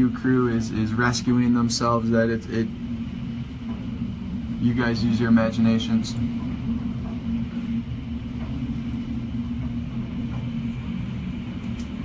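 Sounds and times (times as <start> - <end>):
constant low hum: 0.0 - 12.0
strong wind rumbling: 0.0 - 12.0.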